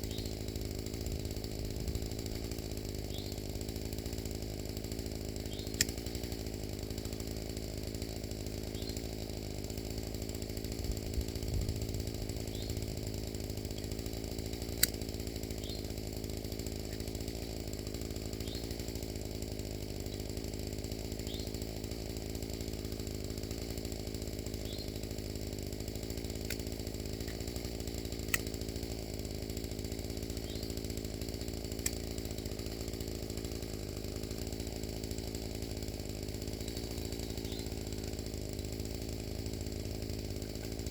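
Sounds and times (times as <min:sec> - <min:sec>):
small gasoline engine running: 0:00.0 - 0:40.9
sharp clicks: 0:05.7 - 0:06.0, 0:26.4 - 0:26.6.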